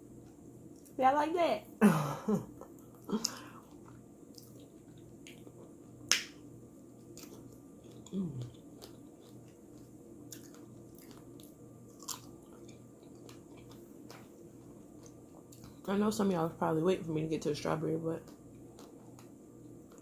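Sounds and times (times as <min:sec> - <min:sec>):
person chewing: 0:02.6 - 0:06.2, 0:06.9 - 0:15.9, 0:18.2 - 0:20.0.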